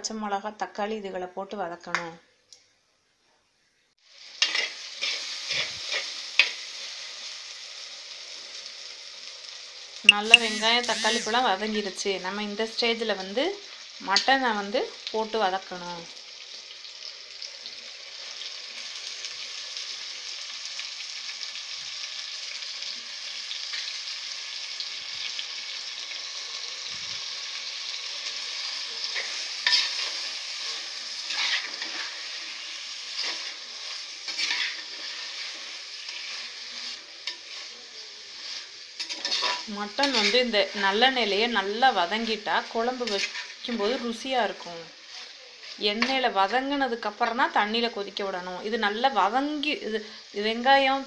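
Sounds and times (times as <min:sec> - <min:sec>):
meat sizzling in a pot: 0:04.0 - 0:51.0
metal spatula scraping clay pot: 0:34.3 - 0:35.5, 0:39.0 - 0:40.5.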